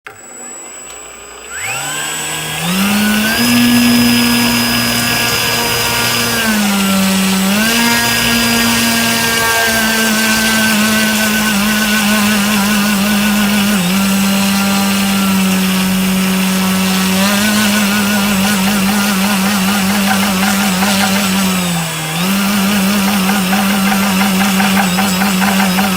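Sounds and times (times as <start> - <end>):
electric motor whine: 0.1 - 25.9.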